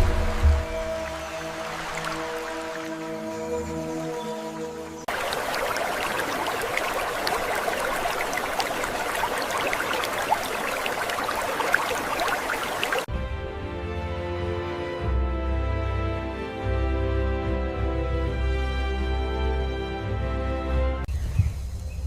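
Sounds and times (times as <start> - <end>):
soft music: 0.0 - 7.7, 13.0 - 21.1
water trickling and splashing: 0.0 - 13.1.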